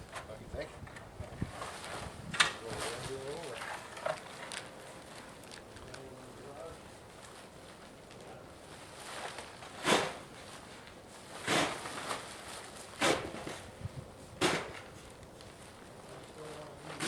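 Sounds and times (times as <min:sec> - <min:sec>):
shovel scraping snow: 0:09.8 - 0:10.3, 0:11.4 - 0:12.3, 0:13.0 - 0:13.6
snow shovel digging into snow: 0:09.8 - 0:10.3, 0:11.4 - 0:12.2, 0:13.0 - 0:13.6, 0:14.4 - 0:14.8.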